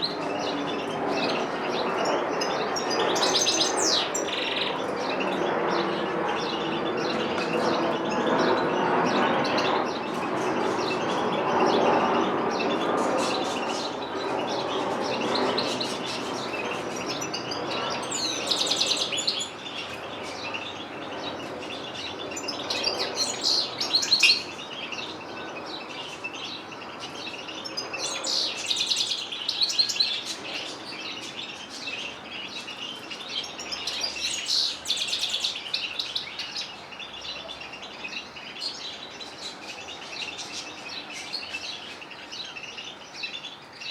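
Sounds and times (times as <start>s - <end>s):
small birds singing: 0.0s - 43.9s.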